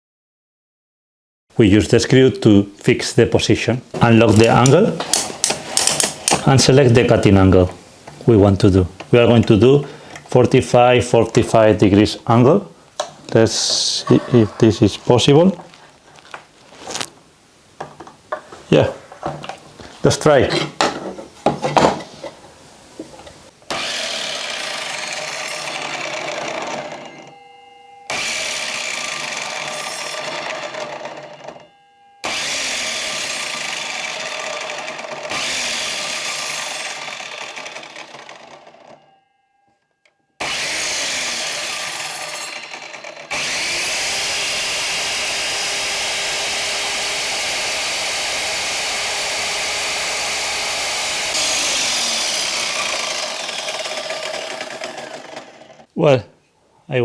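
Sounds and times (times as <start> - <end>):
mitre saw cutting wood: 23.7 - 27.3, 28.1 - 31.6, 32.2 - 39.1, 40.4 - 55.9.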